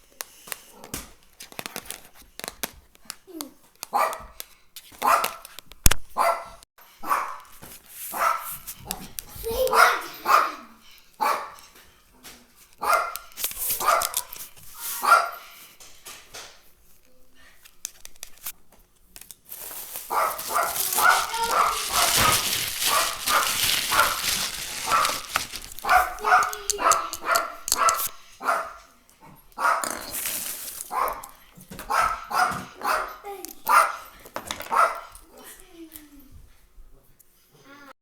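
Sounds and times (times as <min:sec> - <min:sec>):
dog barking: 0:03.9 - 0:04.3, 0:05.0 - 0:05.4, 0:06.1 - 0:07.4, 0:08.1 - 0:08.6, 0:09.6 - 0:11.6, 0:12.8 - 0:14.3, 0:15.0 - 0:15.5, 0:20.1 - 0:30.0, 0:30.9 - 0:35.2.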